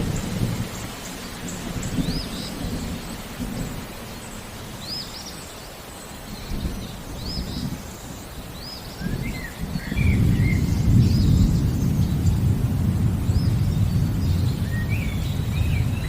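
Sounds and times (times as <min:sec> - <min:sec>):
low rolling thunder: 0:00.0 - 0:05.0, 0:09.0 - 0:16.0
steady rain: 0:00.0 - 0:16.0.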